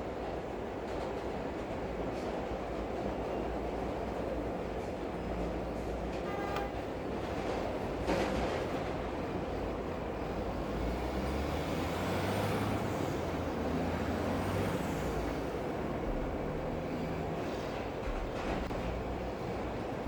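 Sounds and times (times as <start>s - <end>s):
large vehicle rumbling past: 10.2s - 19.6s.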